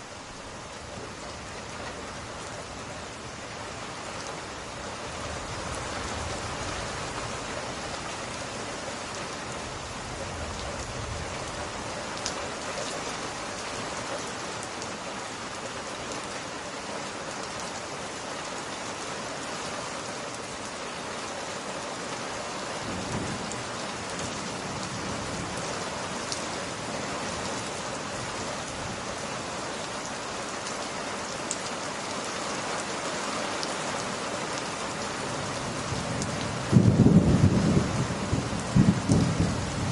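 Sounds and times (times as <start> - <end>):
rain falling on glass: 0.1 - 39.9.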